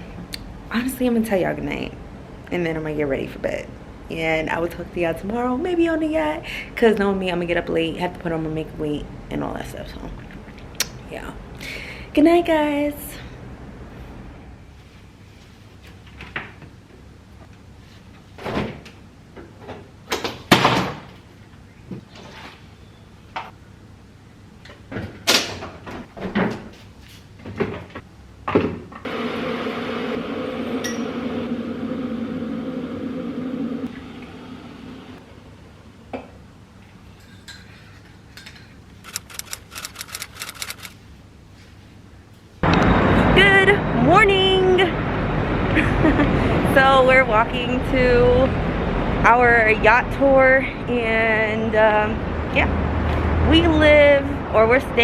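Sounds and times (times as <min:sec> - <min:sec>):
mechanical hum with low drone: 0:00.0 - 0:55.0
quick clicks: 0:39.0 - 0:41.0.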